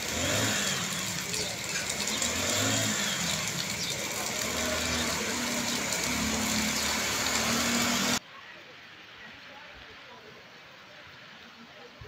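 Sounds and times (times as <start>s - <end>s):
car engine at low revs: 0.0s - 8.2s
heavy rain and water hiss: 0.0s - 12.0s.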